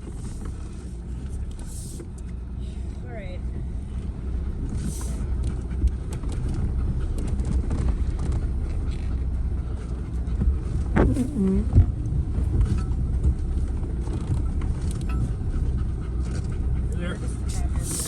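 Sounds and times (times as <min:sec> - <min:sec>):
vehicle engine idling: 0:00.0 - 0:18.0.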